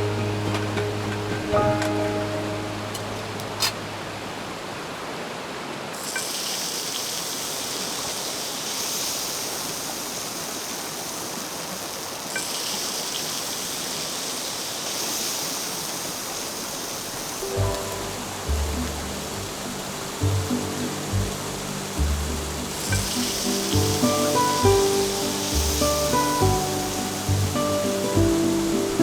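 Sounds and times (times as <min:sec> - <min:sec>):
river rushing: 0:00.0 - 0:29.0
bright high hiss: 0:06.0 - 0:29.0.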